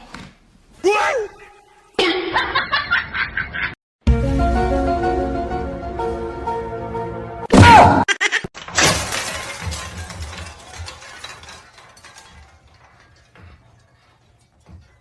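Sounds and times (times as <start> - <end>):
clatter of breaking objects: 8.6 - 15.0
loud crash: 8.7 - 13.4.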